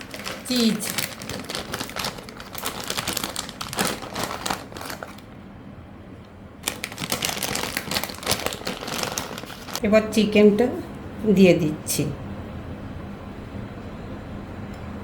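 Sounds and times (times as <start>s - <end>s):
plastic packet crinkling: 0.0s - 5.4s, 6.6s - 9.8s.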